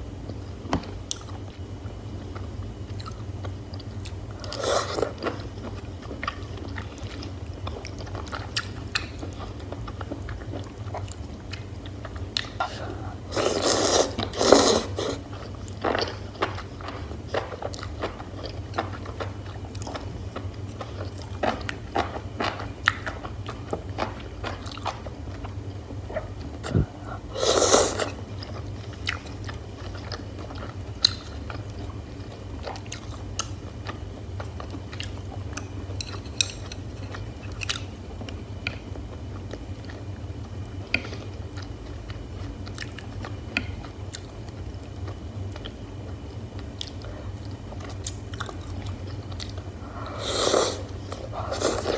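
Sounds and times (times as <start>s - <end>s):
low steady hum: 0.0s - 51.9s
person chewing and biting food: 11.0s - 20.1s, 26.1s - 31.2s.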